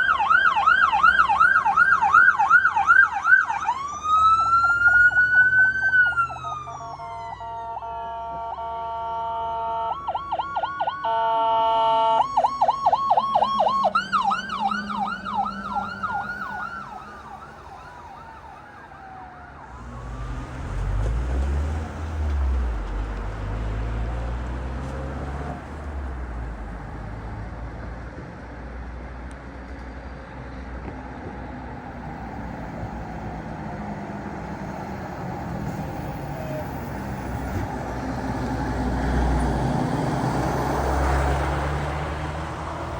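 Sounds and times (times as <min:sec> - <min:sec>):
electronic siren wailing and yelping: 0:00.0 - 0:20.4
road noise: 0:00.0 - 0:42.9
heavy vehicle engine rumble: 0:12.2 - 0:42.9.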